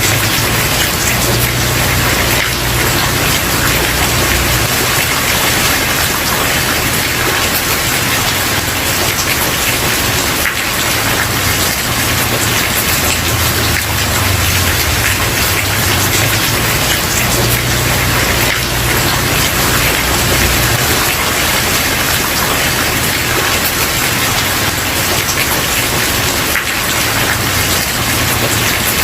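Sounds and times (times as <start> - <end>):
rain on a wooden porch: 0.0 - 29.0.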